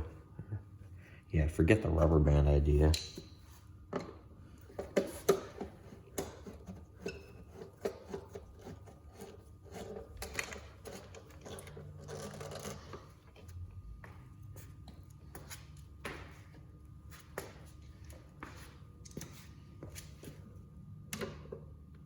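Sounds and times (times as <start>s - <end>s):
rubbing and scraping: 5.1s - 13.2s.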